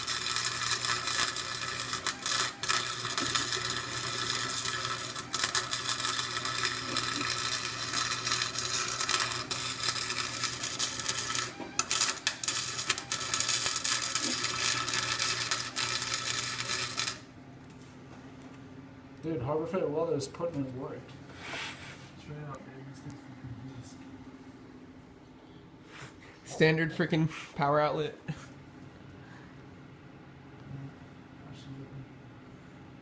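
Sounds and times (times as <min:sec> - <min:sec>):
arc welder crackling: 0:00.0 - 0:17.8
low electrical buzz: 0:00.0 - 0:33.0.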